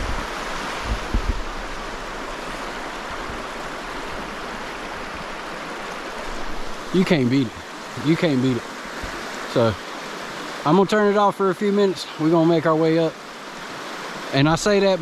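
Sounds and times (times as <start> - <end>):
low thumps on microphone: 0.0 - 2.2
water rushing: 0.0 - 15.0.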